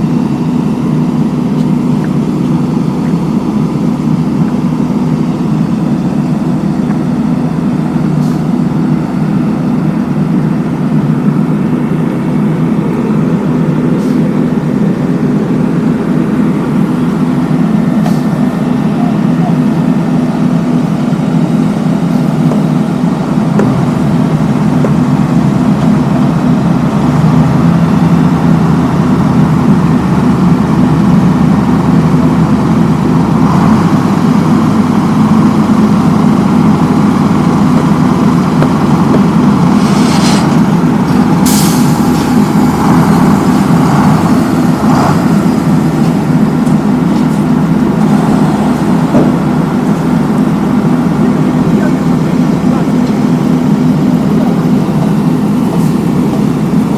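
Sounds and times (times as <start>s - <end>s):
road-paving machinery engine drone: 0.0s - 56.9s
short hisses: 39.8s - 40.6s.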